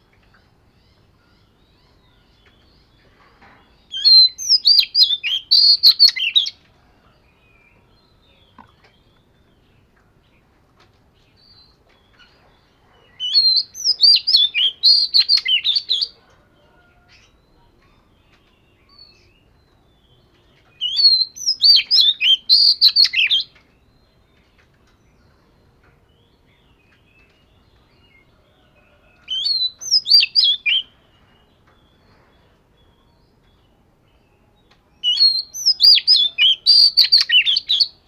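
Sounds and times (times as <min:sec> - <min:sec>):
songbird singing sweeping notes: 0:00.0 - 0:06.6, 0:13.1 - 0:16.2, 0:17.2 - 0:28.3, 0:29.3 - 0:38.0.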